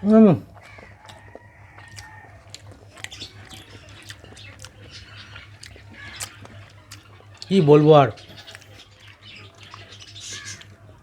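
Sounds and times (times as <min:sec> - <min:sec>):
low steady hum: 0:00.0 - 0:11.0
person chewing food: 0:00.0 - 0:11.0.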